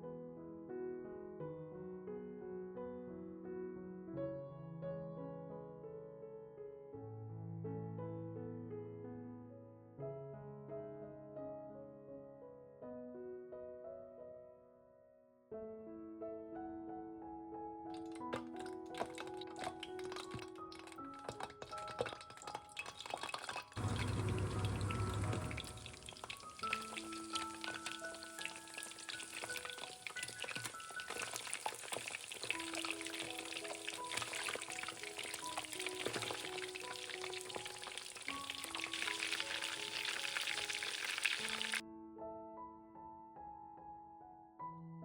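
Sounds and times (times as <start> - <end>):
light piano music: 0.0 - 45.0
meatballs sizzling in hot oil: 21.8 - 41.8.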